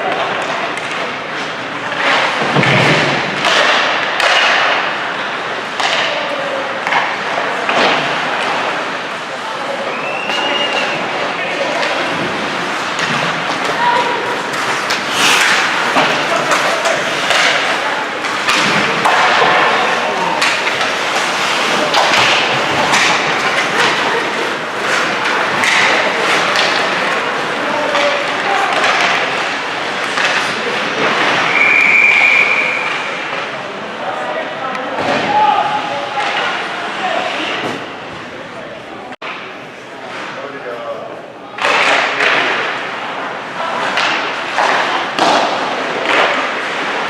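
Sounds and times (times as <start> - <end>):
arena noise: 0.0 - 47.0
skates on ice rink: 0.0 - 47.0.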